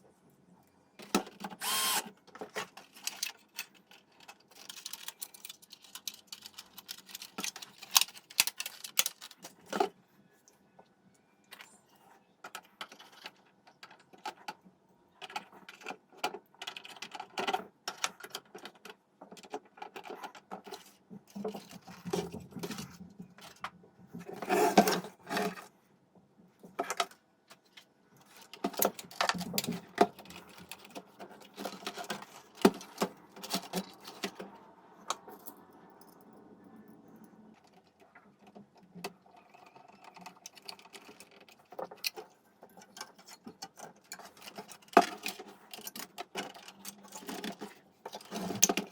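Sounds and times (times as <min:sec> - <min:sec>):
clicks rattles and scrapes of parts: 0:01.0 - 0:10.0, 0:12.4 - 0:25.8, 0:26.4 - 0:48.9.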